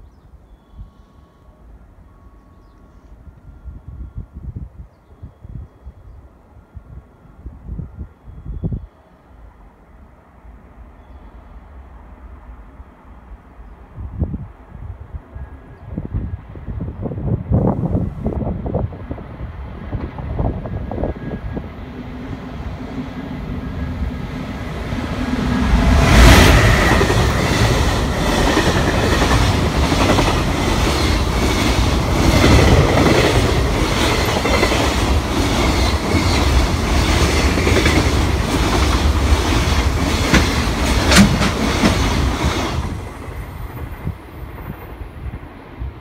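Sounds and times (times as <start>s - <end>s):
electric locomotive passing: 0.0s - 46.0s
wheels clickety-clack over rails: 26.6s - 44.0s.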